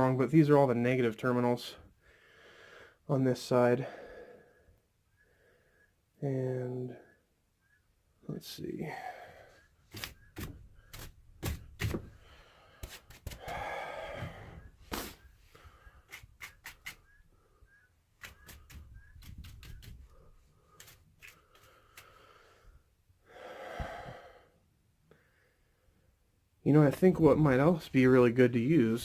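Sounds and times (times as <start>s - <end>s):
heavy breaths: 1.9s - 3.1s, 3.8s - 6.0s, 8.8s - 9.8s, 12.0s - 16.1s, 20.1s - 26.0s
brush knocking on terminals: 16.1s - 17.0s, 18.2s - 22.1s.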